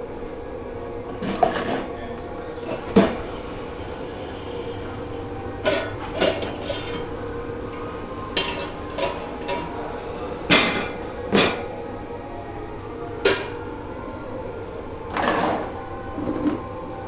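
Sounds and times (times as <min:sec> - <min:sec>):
steady background hum: 0:00.0 - 0:17.0
dishes and cutlery clattering: 0:01.2 - 0:01.9, 0:05.6 - 0:07.2, 0:08.3 - 0:09.8, 0:10.5 - 0:11.7, 0:13.2 - 0:13.6.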